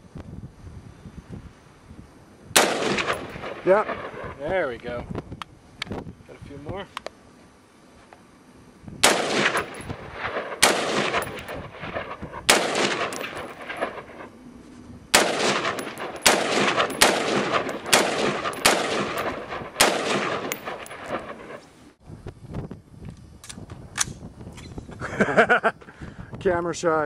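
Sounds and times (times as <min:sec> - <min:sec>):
rifle shots with echo: 0:02.6 - 0:04.5, 0:09.0 - 0:14.3, 0:15.1 - 0:21.7.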